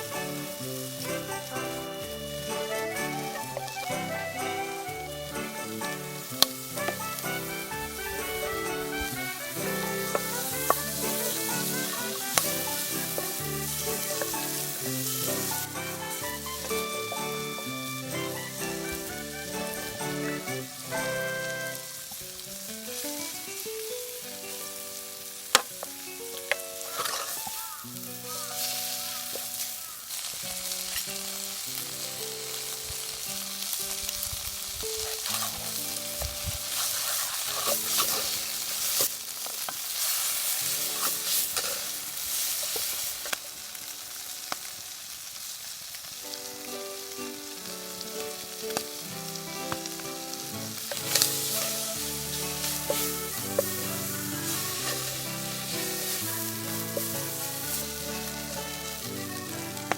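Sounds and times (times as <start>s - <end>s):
background music: 0.0s - 33.8s, 46.3s - 59.9s
food sizzling in a pan: 0.0s - 59.9s.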